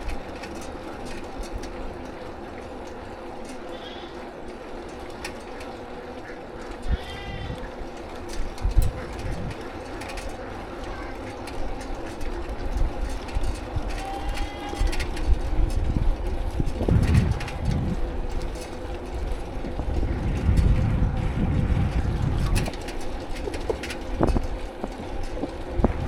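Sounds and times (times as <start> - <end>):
bicycle road noise: 0.0 - 26.0
wind rumbling on microphone: 6.8 - 10.3, 12.2 - 26.0.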